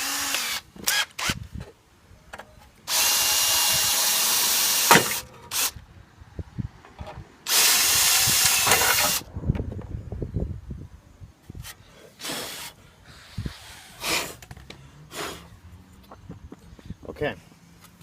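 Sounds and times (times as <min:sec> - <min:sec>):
power drill drilling metal: 0:00.0 - 0:01.3, 0:02.9 - 0:05.7, 0:07.5 - 0:09.2.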